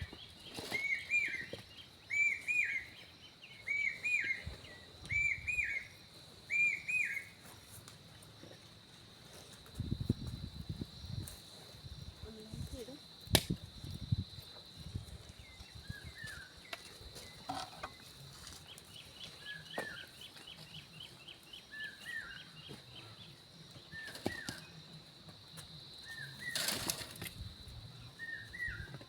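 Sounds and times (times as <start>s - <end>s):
high bird chirps: 3.6s - 5.9s.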